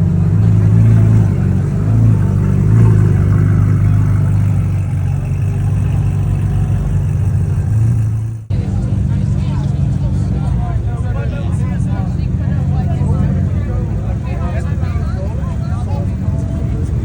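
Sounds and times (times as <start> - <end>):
car engine at low revs: 0.0 - 17.0.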